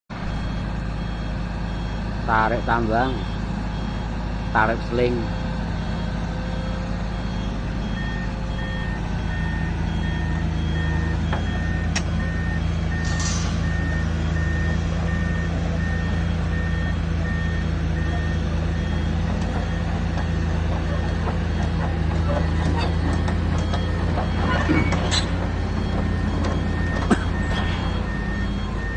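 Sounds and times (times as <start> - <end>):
diesel engine running: 0.1 - 28.9
reversing alarm beeping: 0.2 - 28.9.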